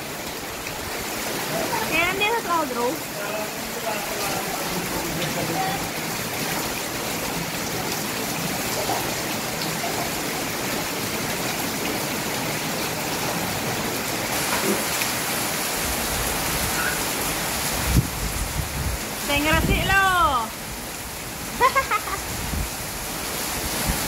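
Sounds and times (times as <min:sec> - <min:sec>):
rain falling: 0:00.0 - 0:24.0.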